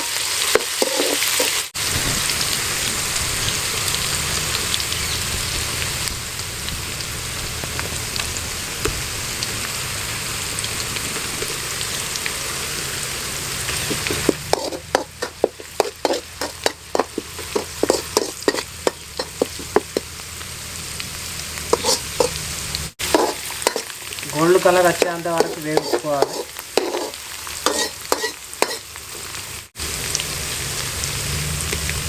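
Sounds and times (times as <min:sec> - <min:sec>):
metal spoon scraping a pan: 0:00.0 - 0:01.6, 0:13.7 - 0:20.1, 0:21.7 - 0:22.4, 0:23.0 - 0:28.9
food sizzling in hot oil: 0:00.0 - 0:32.0.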